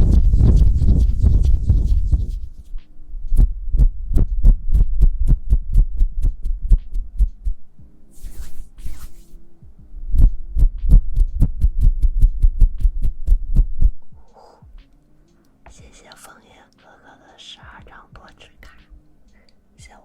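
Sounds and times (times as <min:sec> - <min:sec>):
brief swishes: 0:08.1 - 0:09.4.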